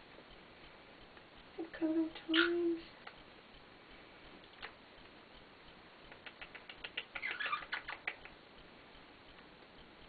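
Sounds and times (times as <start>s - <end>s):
parrot clicking: 4.4s - 5.2s, 6.0s - 8.4s.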